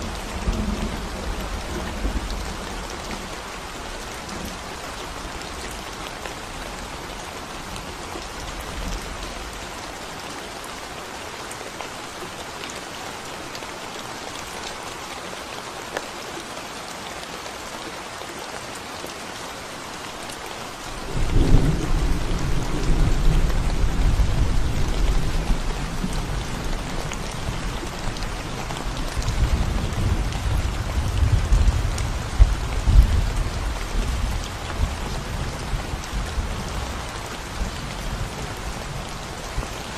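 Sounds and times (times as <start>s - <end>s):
rain on concrete road: 0.0s - 39.9s
thunder rumbling: 21.1s - 38.4s.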